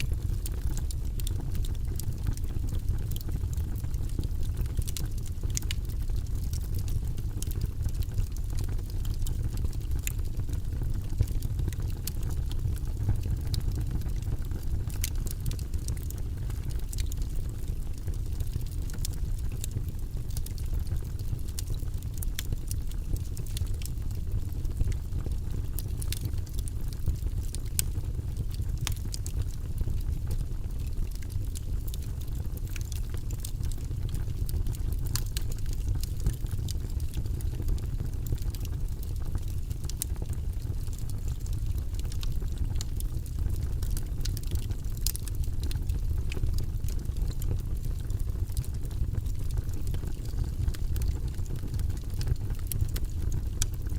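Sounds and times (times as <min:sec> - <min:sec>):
low rumble of fire: 0:00.0 - 0:53.9
wood logs crackling in fireplace: 0:00.0 - 0:53.9.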